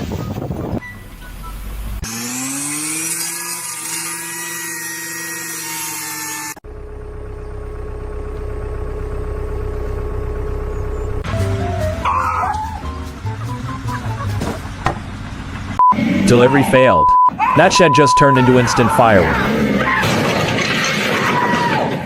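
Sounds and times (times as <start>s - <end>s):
low machine hum: 6.6s - 15.8s.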